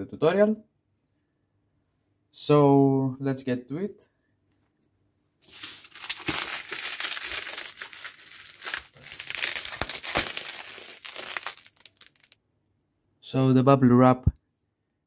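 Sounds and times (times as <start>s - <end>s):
bubble wrap rustling and crackling: 5.4s - 12.4s.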